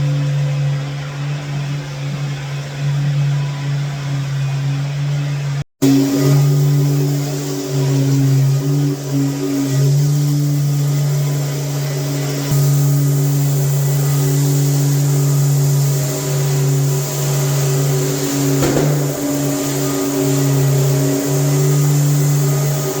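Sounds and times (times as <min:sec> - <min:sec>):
electric drywall sander running: 0:05.8 - 0:23.0
short scraping burst: 0:17.1 - 0:23.0.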